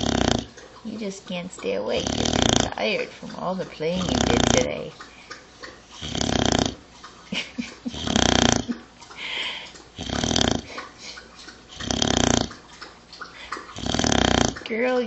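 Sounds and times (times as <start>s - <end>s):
dog snoring: 0.0s - 0.5s, 1.9s - 3.0s, 4.0s - 4.9s, 6.0s - 6.8s, 7.9s - 8.7s, 10.0s - 10.7s, 11.7s - 12.5s, 13.7s - 14.6s.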